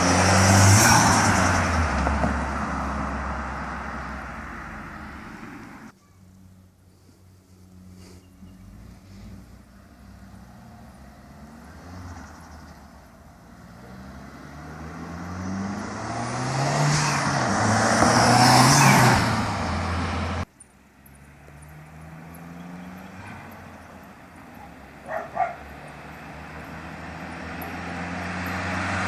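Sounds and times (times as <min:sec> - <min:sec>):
turbocharged car engine revving: 0:13.4 - 0:20.4, 0:24.9 - 0:29.0
quieter engine running: 0:20.2 - 0:29.0.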